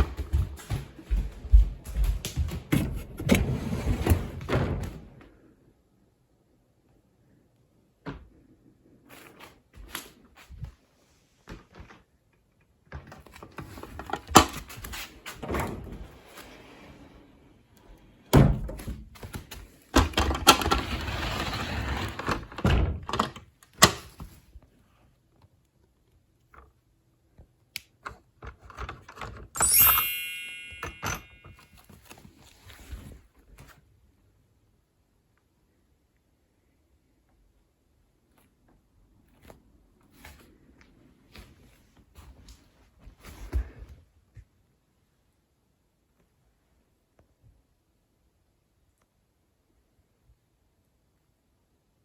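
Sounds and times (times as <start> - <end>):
high piano note: 29.6 - 31.6.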